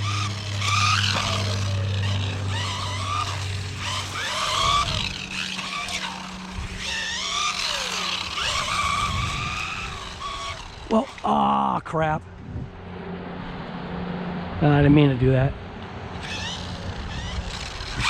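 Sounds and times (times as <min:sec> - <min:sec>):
electric motor whining: 0:00.0 - 0:11.6, 0:16.1 - 0:18.0
steady low hum: 0:00.0 - 0:18.0.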